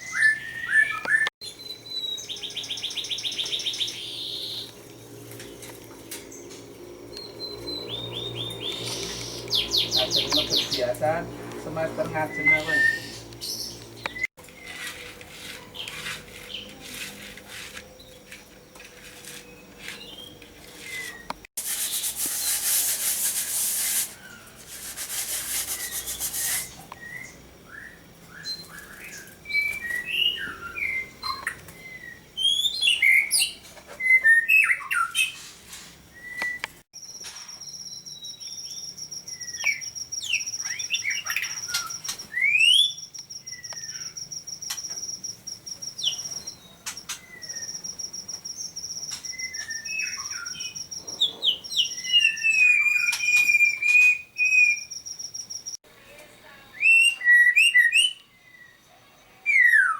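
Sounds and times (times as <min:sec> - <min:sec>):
songbirds chirping: 0:00.0 - 0:59.9
loud hiss: 0:21.6 - 0:26.8.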